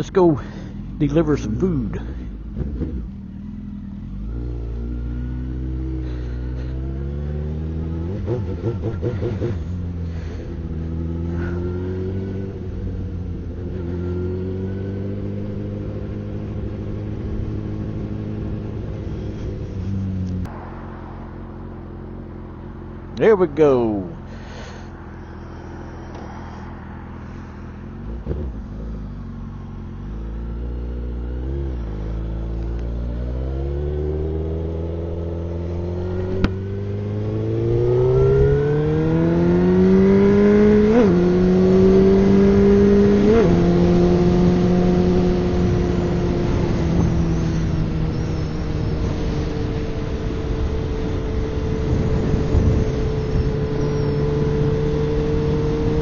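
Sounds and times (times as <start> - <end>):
motorcycle engine accelerating: 0.0 - 56.0
wind noise on microphone: 44.4 - 56.0.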